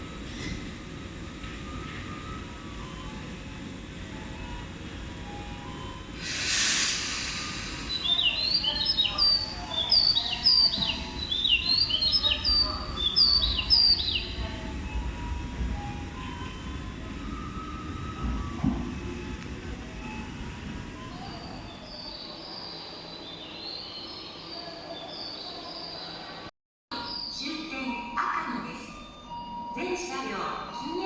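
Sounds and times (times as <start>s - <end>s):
short hiss: 6.2s - 7.9s.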